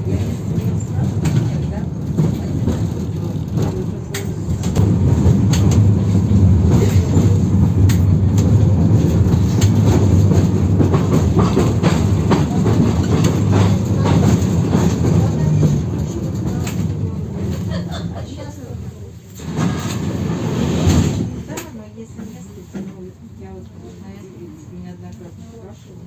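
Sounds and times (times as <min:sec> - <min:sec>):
tram wheels rumbling: 0:00.0 - 0:26.0
rail joint knocks and rattles: 0:00.2 - 0:17.7.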